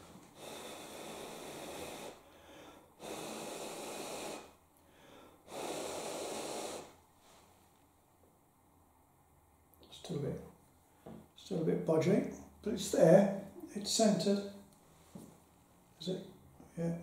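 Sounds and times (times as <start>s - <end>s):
person blowing breath: 0.0s - 7.5s.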